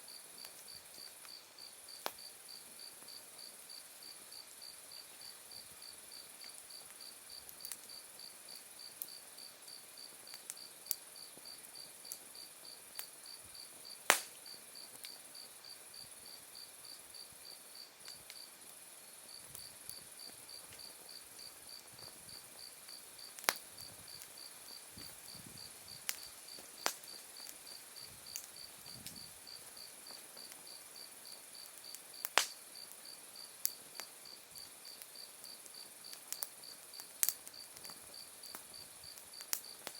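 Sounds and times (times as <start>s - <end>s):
wood fire popping and crackling: 6.2s - 15.5s, 19.4s - 39.9s.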